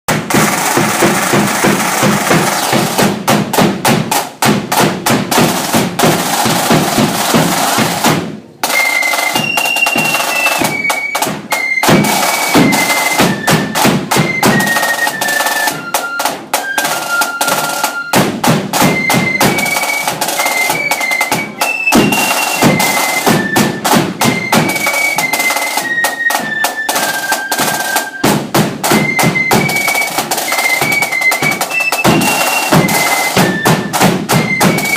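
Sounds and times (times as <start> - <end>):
snare and bass drums: 0.1 - 34.9
shrill flute melody: 0.4 - 3.0, 8.6 - 34.9.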